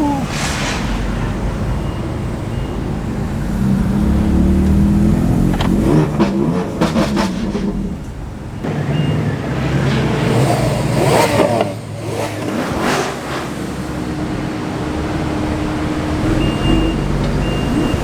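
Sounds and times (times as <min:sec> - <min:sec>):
sports car engines revving: 0:00.0 - 0:18.0.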